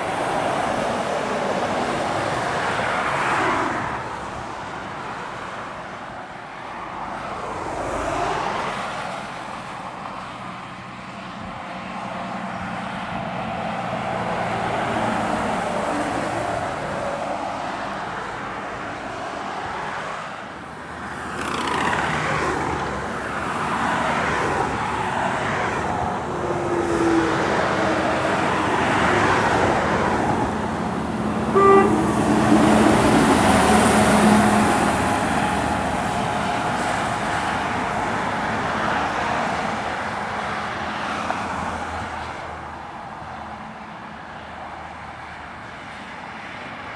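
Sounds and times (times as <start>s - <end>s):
heavy trucks climbing a hill: 9.0s - 46.9s
air horn blast: 31.3s - 34.6s.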